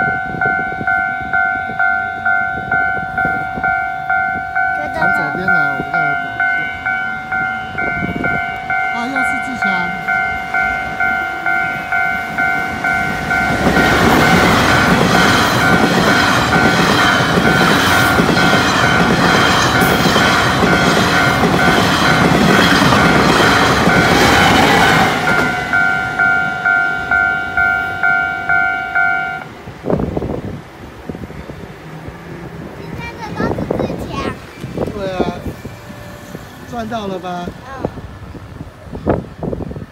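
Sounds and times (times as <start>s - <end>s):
level crossing bell dinging: 0.0s - 17.8s, 25.3s - 29.5s
train passing close by: 0.0s - 39.9s.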